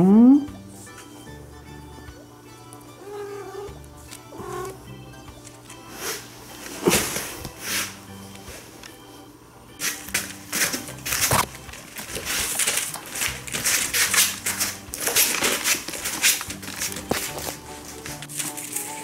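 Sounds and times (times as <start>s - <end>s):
soft background music: 0.0s - 19.0s
rustling and scratching: 5.4s - 8.9s, 9.8s - 19.0s.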